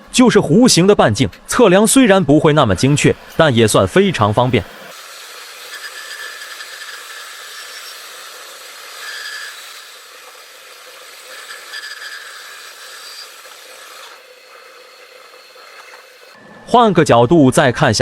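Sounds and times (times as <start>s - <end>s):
metal lathe cutting hiss: 2.0s - 16.4s.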